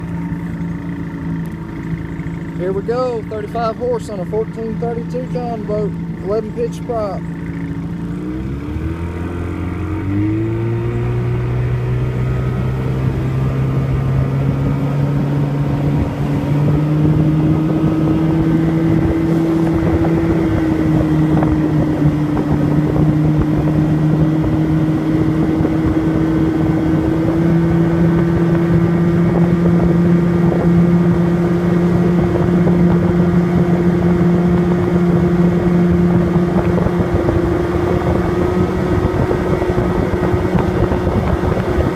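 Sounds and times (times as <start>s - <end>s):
outboard motor revving: 0.0s - 41.9s.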